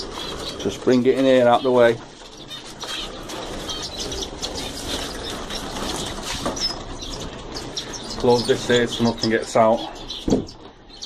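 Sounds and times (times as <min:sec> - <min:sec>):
small birds chirping: 0:00.0 - 0:11.0
wings fluttering: 0:00.0 - 0:11.0.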